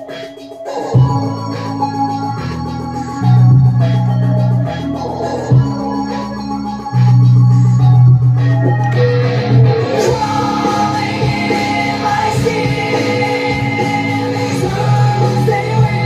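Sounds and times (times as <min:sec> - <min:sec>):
song with held instrumental notes: 0:00.0 - 0:16.0
person singing: 0:04.7 - 0:06.5, 0:09.8 - 0:16.0.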